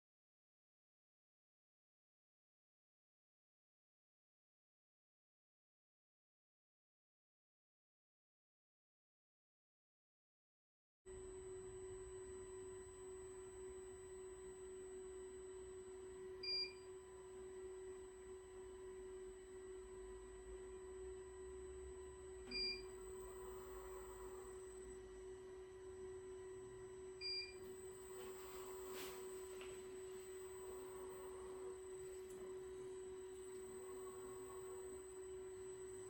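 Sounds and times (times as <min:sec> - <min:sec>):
steady electrical hum: 0:11.1 - 0:36.0.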